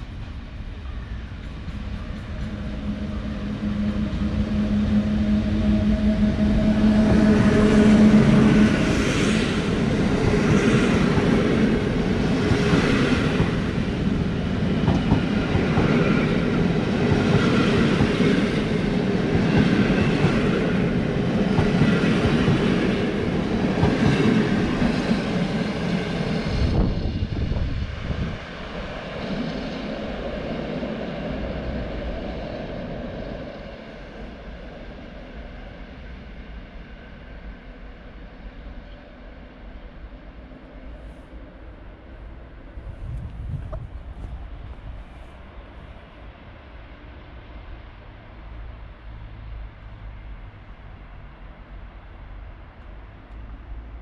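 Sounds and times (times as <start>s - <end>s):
locomotive low tone: 0.7s - 8.6s.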